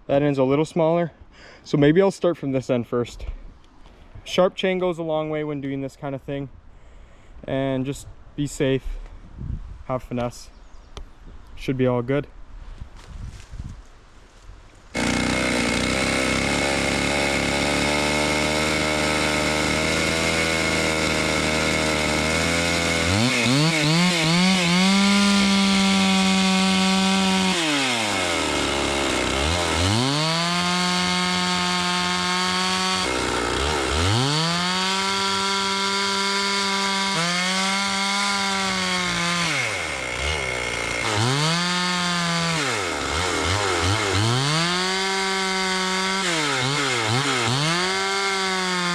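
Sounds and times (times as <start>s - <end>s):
chainsaw ripping through log: 14.9s - 48.9s.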